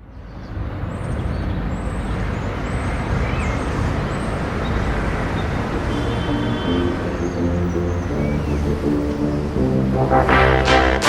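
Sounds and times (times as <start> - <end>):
road noise hiss: 0.0 - 11.0
vehicle engine rumble: 3.6 - 10.3.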